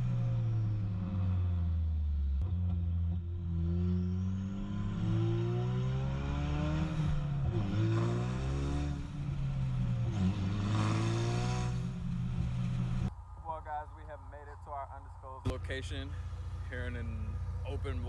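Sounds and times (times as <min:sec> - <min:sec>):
car engine accelerating: 0:00.0 - 0:13.2, 0:14.0 - 0:18.0.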